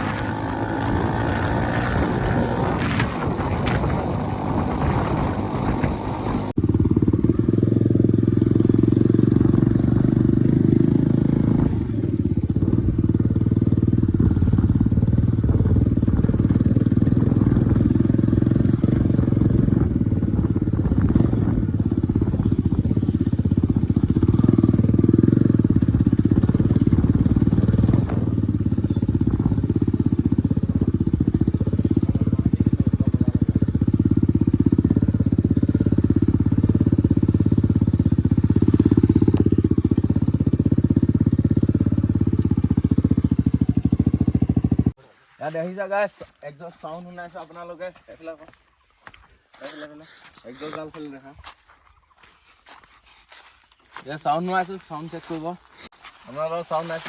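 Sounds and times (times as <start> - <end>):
unmuffled motorcycle engine running: 0.0 - 45.0.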